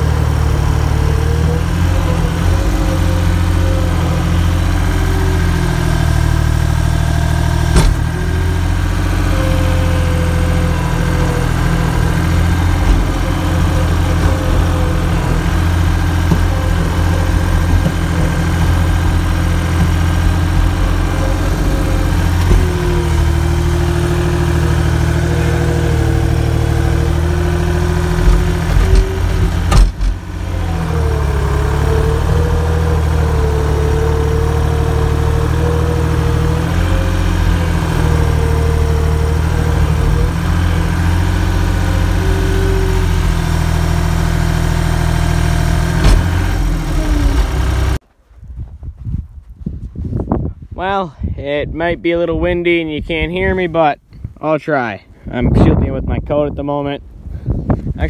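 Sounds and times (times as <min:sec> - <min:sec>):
vehicle engine running: 0:00.0 - 0:48.0.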